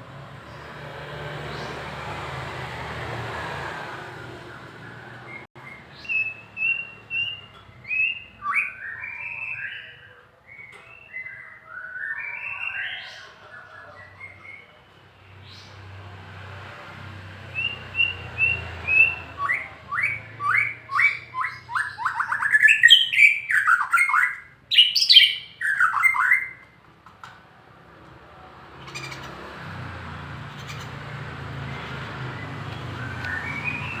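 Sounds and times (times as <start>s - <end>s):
songbird singing: 4.1s - 16.0s, 17.4s - 26.8s, 28.8s - 34.0s.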